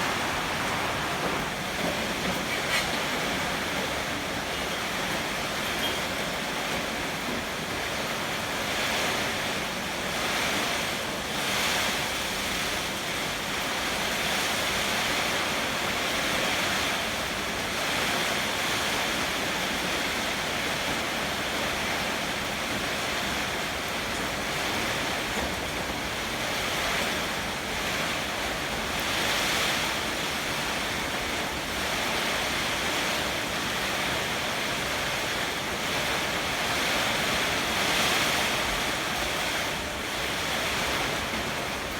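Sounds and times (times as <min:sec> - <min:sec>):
strong wind gusts: 0:00.0 - 0:06.0
heavy rain: 0:00.0 - 0:41.9.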